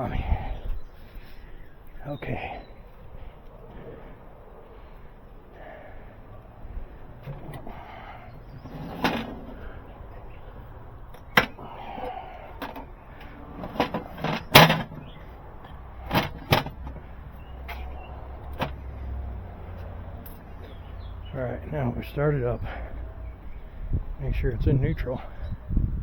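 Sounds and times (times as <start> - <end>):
metal tools clanking: 8.5 - 9.8, 13.5 - 15.2.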